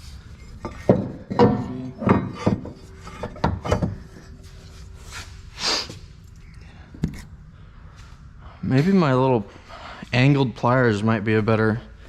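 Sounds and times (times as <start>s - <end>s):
hand tools knocking on metal: 0.7s - 4.1s.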